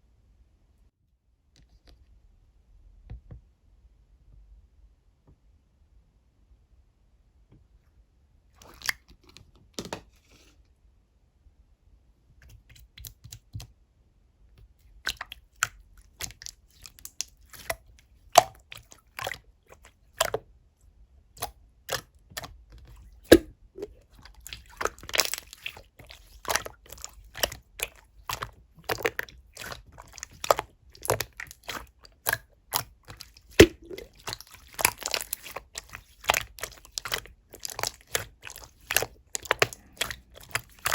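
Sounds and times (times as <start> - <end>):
slime squeezed with wet pops: 8.6 - 9.1, 14.9 - 20.4, 21.4 - 40.9.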